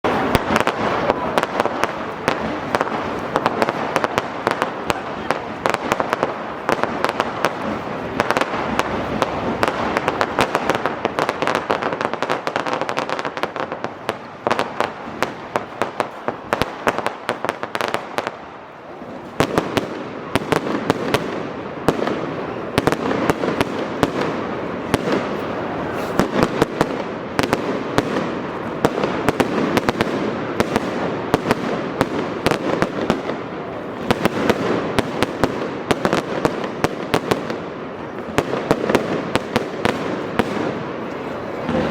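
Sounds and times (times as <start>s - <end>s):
fireworks bangs and crackling: 0.0s - 41.9s.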